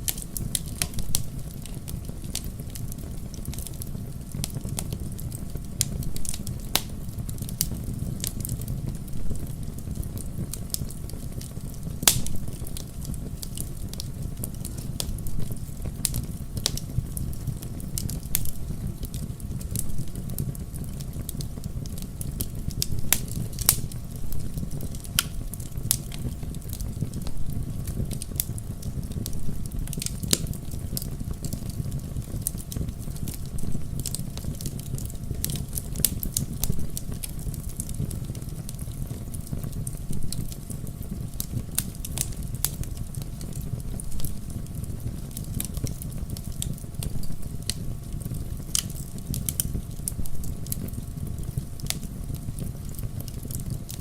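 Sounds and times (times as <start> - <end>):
low fire rumble: 0.0 - 54.0
wood fire crackling: 0.0 - 54.0.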